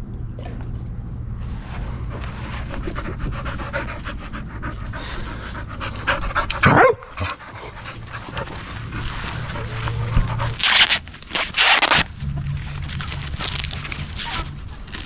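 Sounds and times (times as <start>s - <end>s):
low hum: 0.0s - 15.0s
dog panting: 1.4s - 11.8s
dog falling cry: 2.8s - 12.0s.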